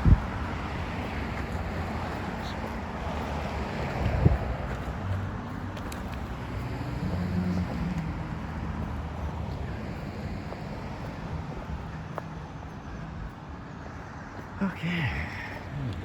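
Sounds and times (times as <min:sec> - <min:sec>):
wind noise on microphone: 0:00.0 - 0:05.4.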